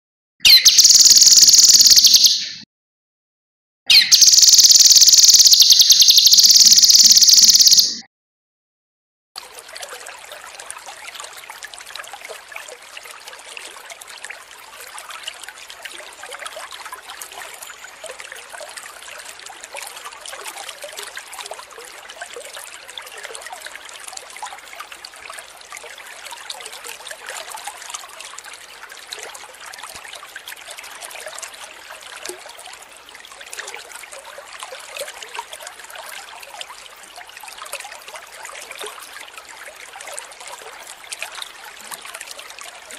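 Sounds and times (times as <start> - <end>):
water babbling over stones: 9.4 - 42.9.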